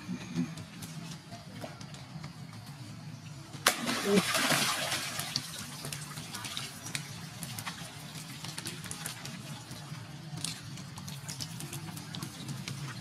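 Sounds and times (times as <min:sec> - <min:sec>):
rain falling on standing water: 0:03.7 - 0:13.0.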